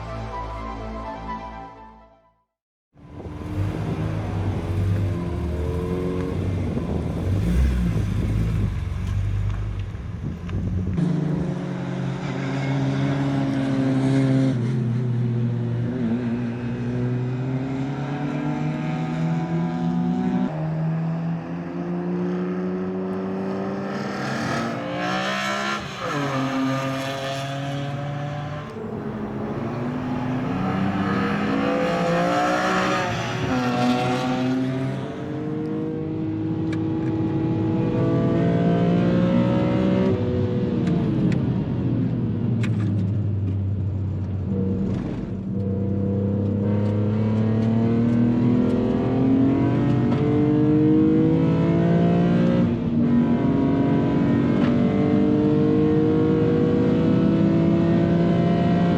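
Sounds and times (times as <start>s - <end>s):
car engine revving through gears: 3.3s - 9.9s, 15.9s - 41.3s, 44.8s - 58.9s.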